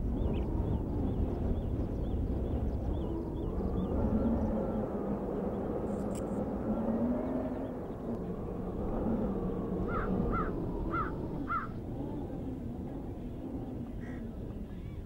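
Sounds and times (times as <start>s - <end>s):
low rumble: 0.0s - 15.0s
bird calling arched notes: 9.8s - 11.8s.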